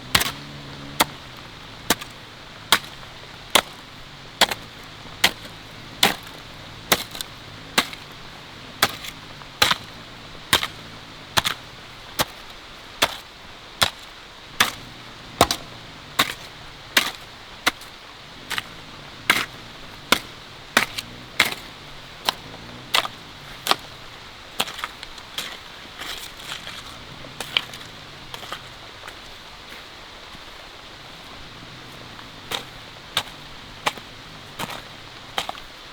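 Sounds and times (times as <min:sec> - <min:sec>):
sharp chopping strikes: 0:00.0 - 0:03.8, 0:04.4 - 0:08.2, 0:08.8 - 0:11.6, 0:12.2 - 0:17.9, 0:19.3 - 0:24.0.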